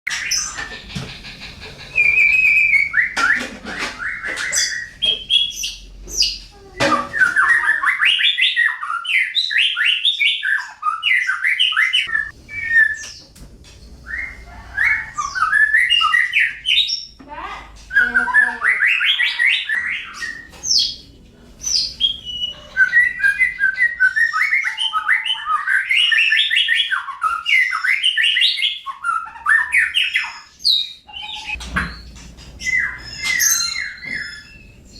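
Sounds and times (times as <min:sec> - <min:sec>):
songbird chirping and warbling: 0:00.1 - 0:34.9.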